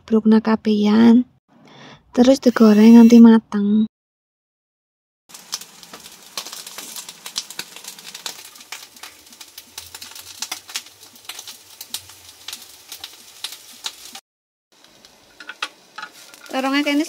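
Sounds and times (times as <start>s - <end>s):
eggplant sizzling in hot oil: 5.3s - 14.2s, 14.8s - 17.0s.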